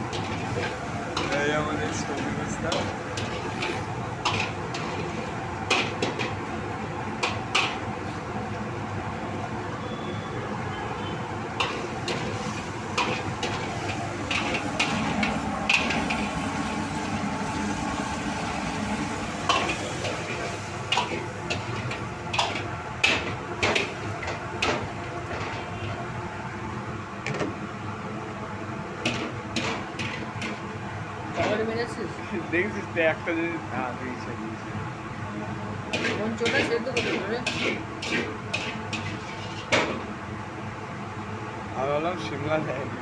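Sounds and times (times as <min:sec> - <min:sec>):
metal utensils scraping a pot: 0:00.0 - 0:06.4, 0:11.6 - 0:16.7, 0:19.4 - 0:25.9, 0:35.9 - 0:40.0.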